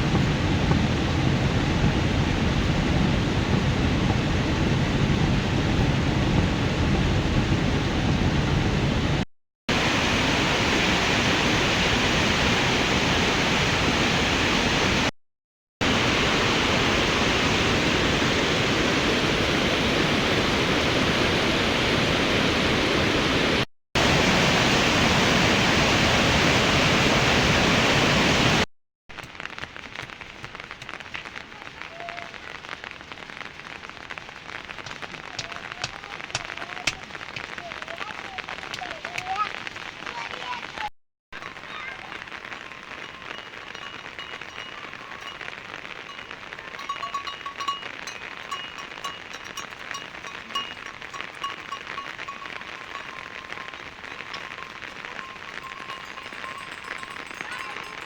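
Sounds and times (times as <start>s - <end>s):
heavy rain pouring: 0.0s - 15.1s, 15.8s - 58.0s
soft rain patter with drips: 29.1s - 58.0s.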